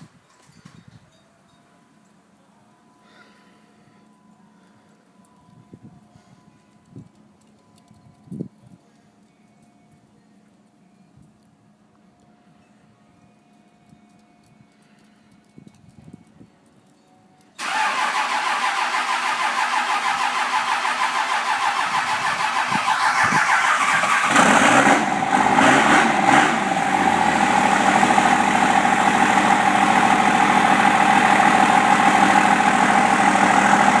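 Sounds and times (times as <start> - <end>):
starter motor cranking: 17.6 - 25.0
diesel engine idling: 17.6 - 34.0.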